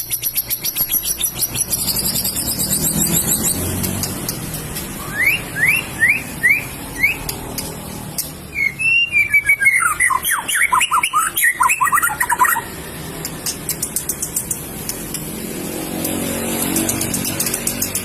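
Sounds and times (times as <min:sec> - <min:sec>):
bird singing whistled notes: 0:00.0 - 0:03.7, 0:05.0 - 0:07.4, 0:08.4 - 0:12.8.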